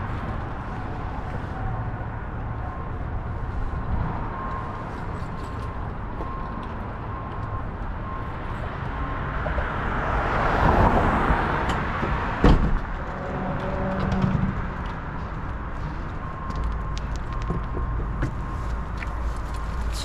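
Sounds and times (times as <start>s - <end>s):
vehicle passing: 8.3s - 17.0s.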